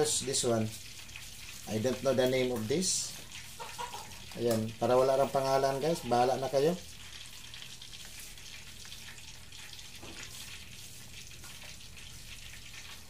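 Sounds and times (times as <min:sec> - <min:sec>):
food frying in hot oil: 0:00.0 - 0:13.0.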